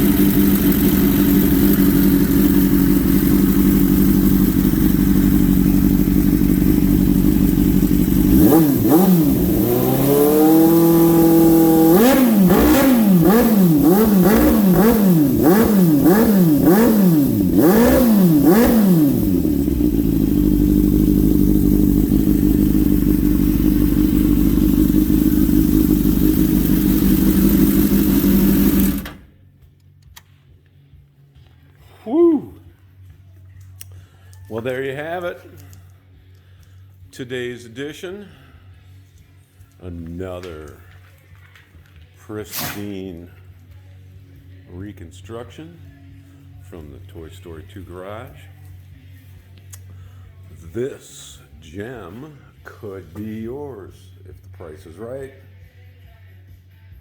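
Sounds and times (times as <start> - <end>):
motorcycle engine revving: 0.0 - 29.4
motorcycle engine idling: 0.0 - 30.0.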